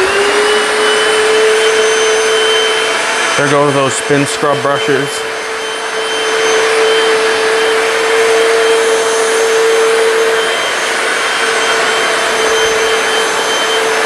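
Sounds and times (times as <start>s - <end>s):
floor cleaner whirring: 0.0s - 14.0s.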